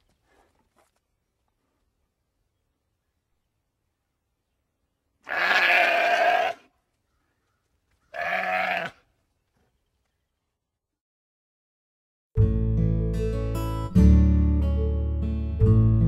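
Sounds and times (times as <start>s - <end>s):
sheep bleating: 5.2s - 6.7s, 8.1s - 9.0s.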